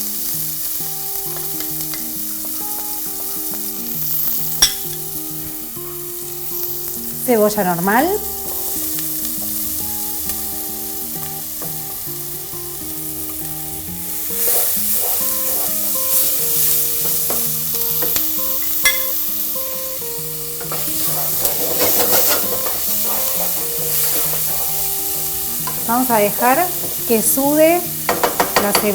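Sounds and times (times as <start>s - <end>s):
soft background music: 0.0s - 28.9s
vegetables sizzling in hot oil: 0.0s - 28.9s
stirring in a pot: 20.6s - 27.4s.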